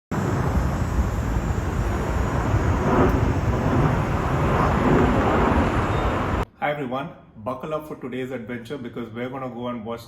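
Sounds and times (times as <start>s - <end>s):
jet engine rumble: 0.1s - 6.5s.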